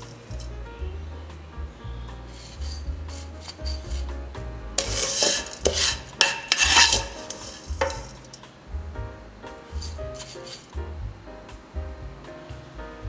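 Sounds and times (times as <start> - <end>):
stirring and scraping in a pan: 0.0 - 0.6, 2.3 - 8.7, 9.7 - 10.8
light sizzle: 0.0 - 8.8, 9.4 - 13.0
soft background music: 0.0 - 13.0.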